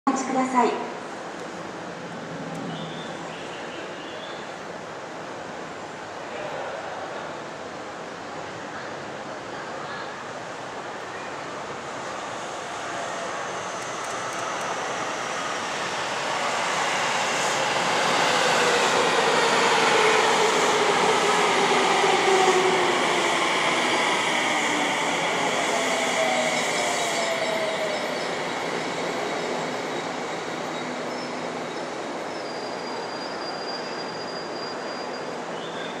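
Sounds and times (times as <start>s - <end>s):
train wheel and rail noise: 0.1s - 36.0s
faint high brake squeal: 25.9s - 36.0s.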